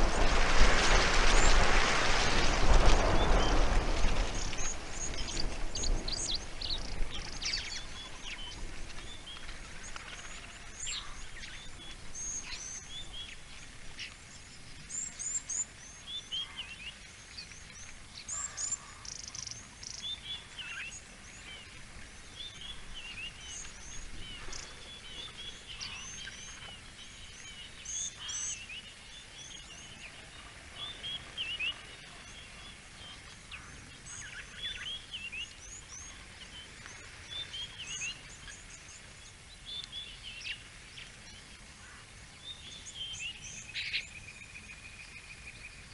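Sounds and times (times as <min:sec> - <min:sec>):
low rumbling noise: 0:00.0 - 0:15.0
faint steady bush background: 0:00.0 - 0:45.9
small birds chirping and trilling: 0:00.0 - 0:45.9.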